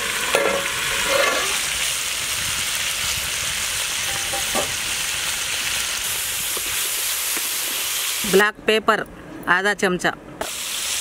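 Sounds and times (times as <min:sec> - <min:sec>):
chicken sizzling in oil: 0:00.0 - 0:08.4, 0:10.4 - 0:11.0
metal lid clanking: 0:00.3 - 0:01.6, 0:04.1 - 0:04.8.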